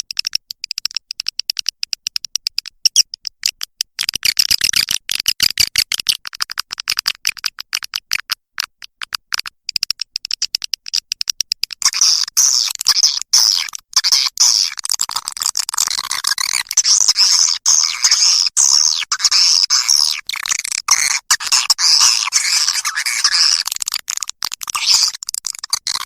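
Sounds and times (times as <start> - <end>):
bird dry clicks: 0.0 - 26.0
high-pitched bird twittering: 16.4 - 23.7.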